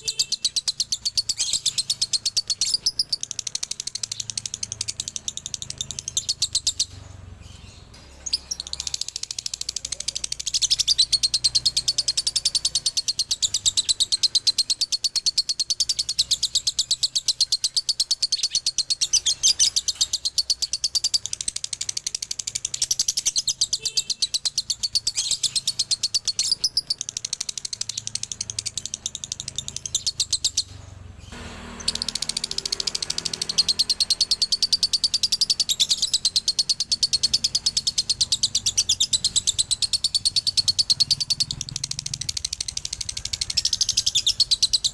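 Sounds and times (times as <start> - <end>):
lovebird chattering song: 0.0 - 44.9.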